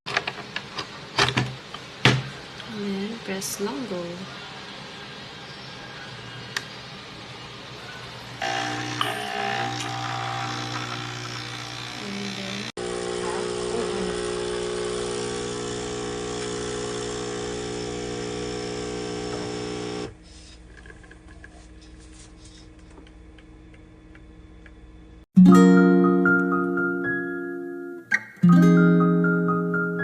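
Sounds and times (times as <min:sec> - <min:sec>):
coffee machine pump buzzing: 0:08.3 - 0:20.2.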